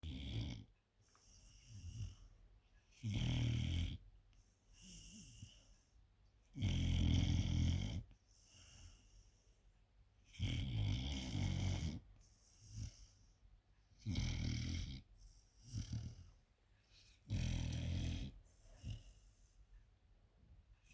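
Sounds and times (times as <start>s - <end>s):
puppy snoring: 0.0s - 0.7s, 2.9s - 4.1s, 6.5s - 9.0s, 10.2s - 13.3s, 13.9s - 19.4s
soft breaths: 1.0s - 2.9s, 4.3s - 6.3s, 8.0s - 10.3s, 11.9s - 20.9s.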